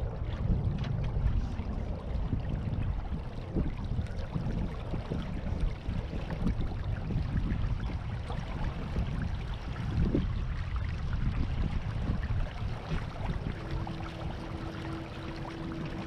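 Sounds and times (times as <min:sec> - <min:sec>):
water splashing along hull: 0:00.0 - 0:16.0
wind rumble on microphone: 0:00.0 - 0:16.0.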